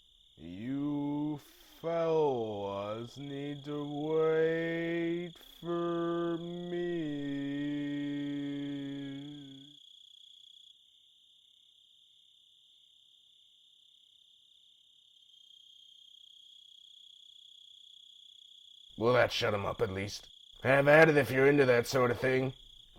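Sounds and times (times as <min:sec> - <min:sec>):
crickets chirring: 0:00.0 - 0:22.9
cartoon voice holding a note: 0:00.4 - 0:09.6.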